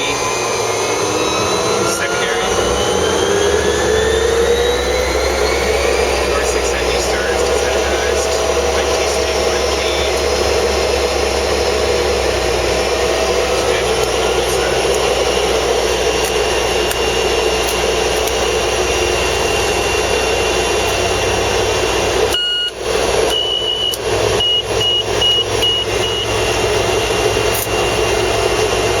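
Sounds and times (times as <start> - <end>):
turboprop engine whine: 0.0 - 29.0
high beeping tone: 22.3 - 26.9.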